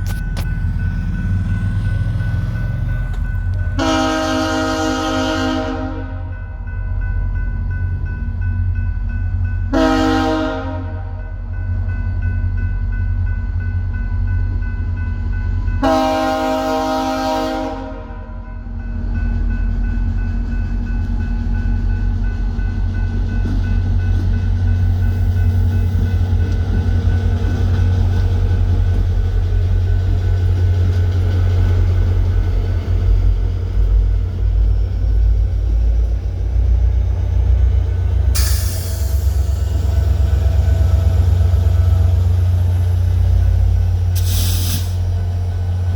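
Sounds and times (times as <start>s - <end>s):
diesel locomotive rumbling: 0.0s - 45.9s
train horn blast: 3.8s - 6.4s, 9.7s - 11.4s, 15.8s - 18.5s
loud hiss: 38.4s - 39.6s, 44.1s - 45.2s.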